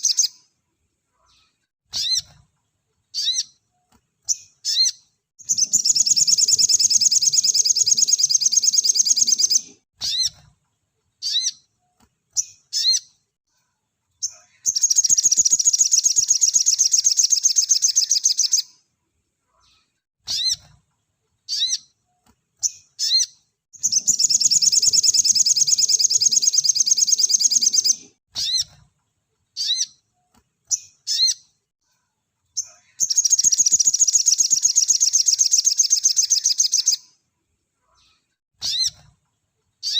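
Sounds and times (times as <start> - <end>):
bird singing rapid high trills: 4.7 - 10.3, 23.0 - 28.6, 33.0 - 37.0.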